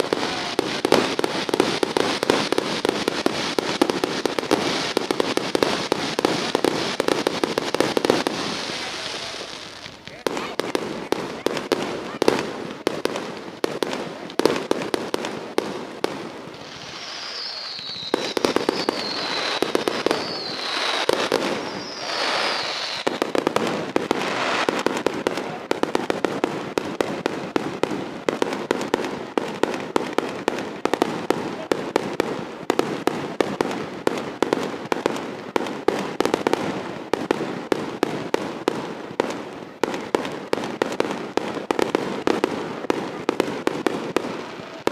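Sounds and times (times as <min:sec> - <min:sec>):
fireworks crackling and popping: 0:00.0 - 0:44.9
falling firework whistles: 0:16.5 - 0:25.1.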